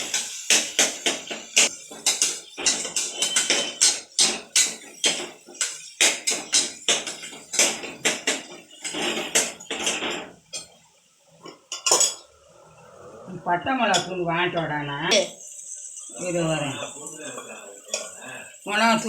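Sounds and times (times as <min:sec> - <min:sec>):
metal spoon scraping a pot: 0:01.1 - 0:10.8.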